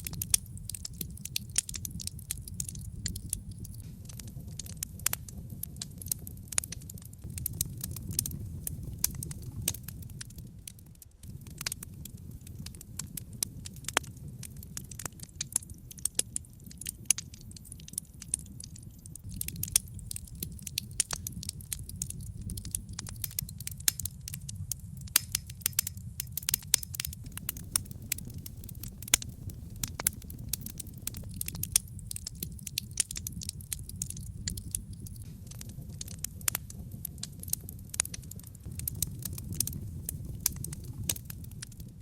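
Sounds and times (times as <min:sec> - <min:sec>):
logs crackling and popping: 0:00.0 - 0:42.0
low rumble of flame: 0:00.0 - 0:42.0.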